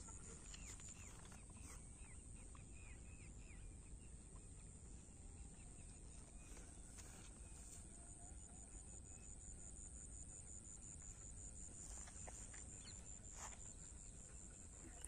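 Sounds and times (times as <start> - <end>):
faint bird chirps: 0.0 - 9.8.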